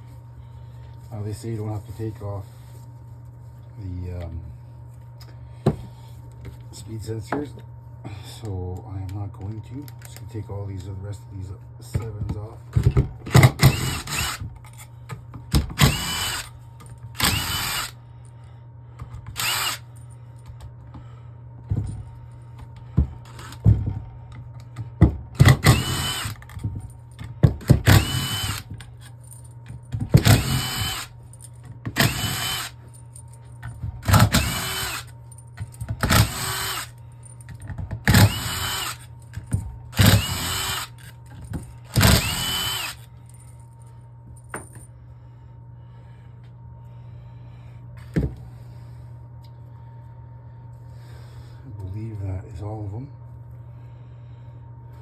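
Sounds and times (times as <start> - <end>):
power tool motor whine: 13.4 - 14.5, 15.7 - 16.5, 17.2 - 18.0, 19.3 - 19.9, 25.4 - 26.6, 27.8 - 28.8, 30.2 - 31.1, 31.9 - 32.8, 34.0 - 35.1, 36.0 - 36.9, 38.0 - 39.1, 39.9 - 41.1, 41.9 - 43.1.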